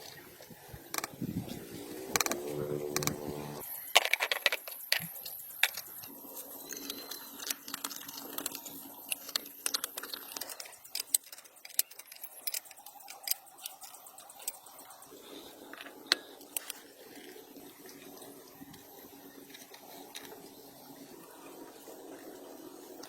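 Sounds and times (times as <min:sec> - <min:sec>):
small hard objects clicking: 0:03.7 - 0:14.9.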